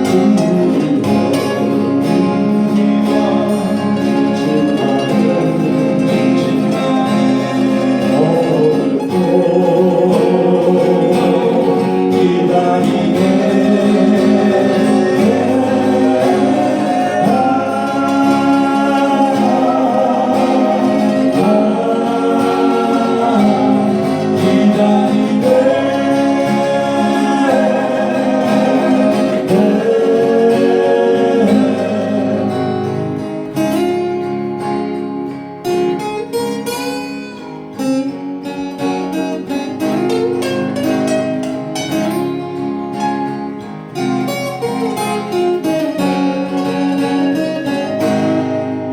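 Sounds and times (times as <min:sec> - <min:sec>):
person singing: 0:00.0 - 0:33.6
acoustic guitar: 0:00.0 - 0:48.9.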